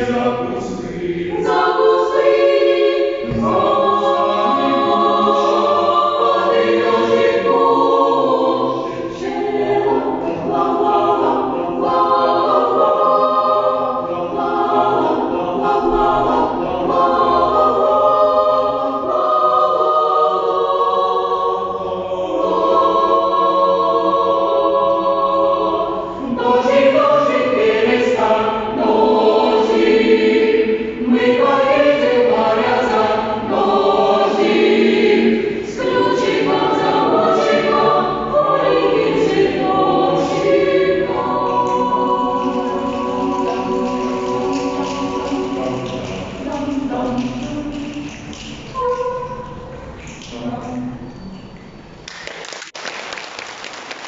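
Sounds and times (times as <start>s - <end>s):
choir singing: 0.0s - 50.5s.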